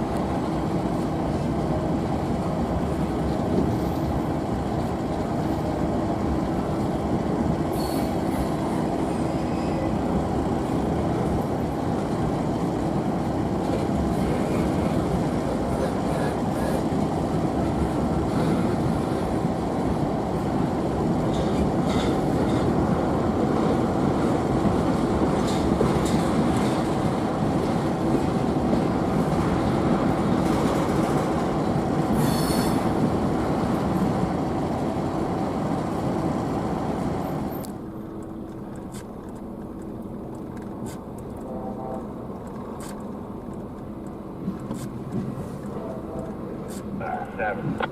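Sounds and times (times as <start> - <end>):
train wheels rumbling on rail: 0.0 - 47.9
high-pitched wheel squeals: 9.1 - 10.0, 32.2 - 32.8.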